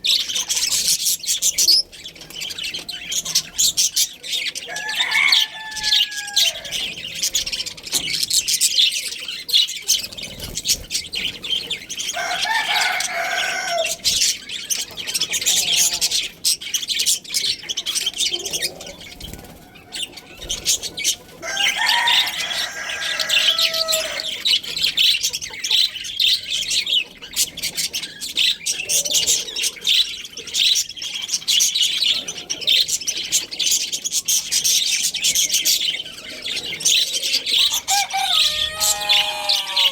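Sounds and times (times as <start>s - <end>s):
budgerigars chattering and chirping: 0.0s - 39.9s
rooster crowing: 4.7s - 7.1s, 12.1s - 14.1s, 21.4s - 24.4s, 37.6s - 39.9s.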